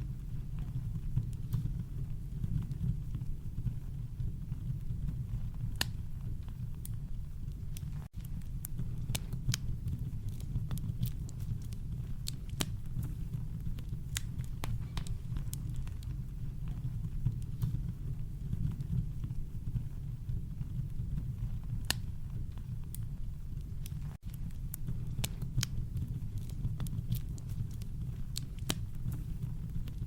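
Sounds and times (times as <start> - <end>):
campfire crackling and popping: 0.4 - 30.0.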